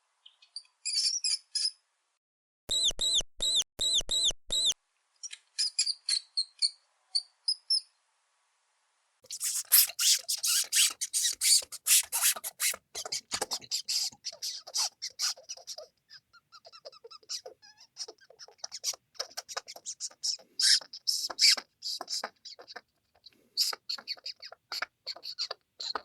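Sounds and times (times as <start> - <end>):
mouse squeaking: 9.3 - 26.0.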